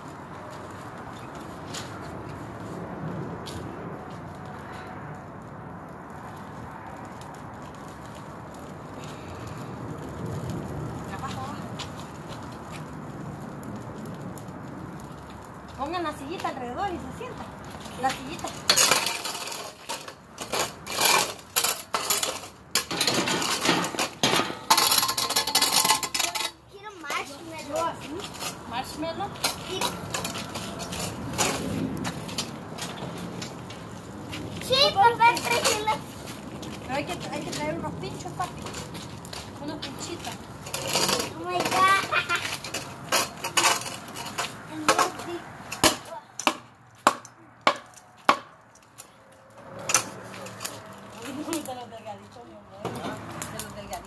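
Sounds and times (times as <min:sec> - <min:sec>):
chairs clattering and scraping: 0:18.6 - 0:26.5, 0:40.2 - 0:46.0
wood being chopped: 0:45.8 - 0:48.6.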